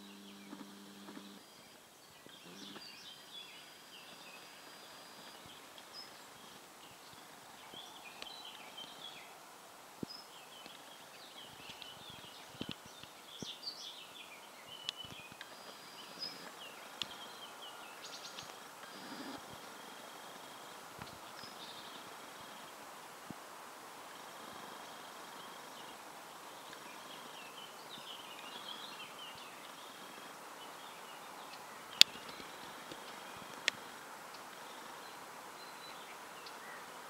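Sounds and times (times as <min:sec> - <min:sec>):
sharp clicks: 0:00.0 - 0:01.4
small birds chirping: 0:00.0 - 0:09.4, 0:10.0 - 0:22.9, 0:24.0 - 0:37.0
steady background hiss: 0:00.0 - 0:37.0.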